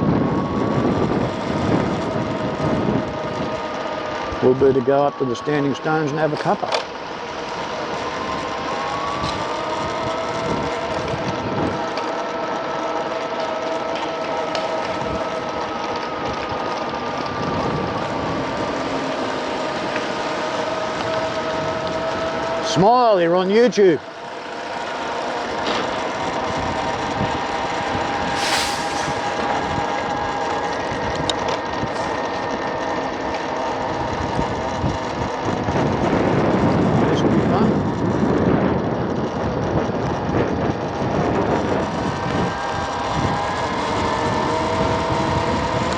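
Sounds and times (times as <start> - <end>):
wind rushing on microphone: 0.0 - 6.1, 8.2 - 11.9, 17.2 - 18.8, 26.5 - 32.2, 34.0 - 45.9
road noise: 0.0 - 22.6, 24.0 - 35.1
electric scooter motor whine: 0.0 - 45.9.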